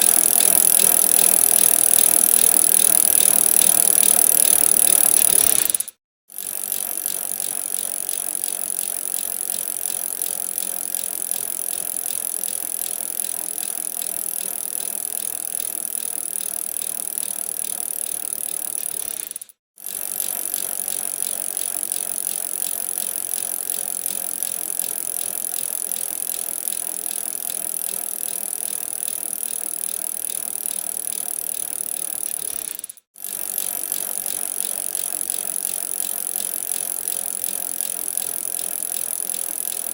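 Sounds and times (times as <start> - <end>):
bicycle tyres and drivetrain rattling: 0.0 - 39.9.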